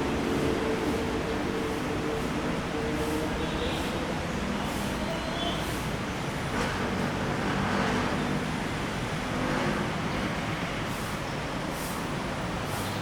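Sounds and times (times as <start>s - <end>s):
rumble of passing vehicles: 0.0s - 13.0s.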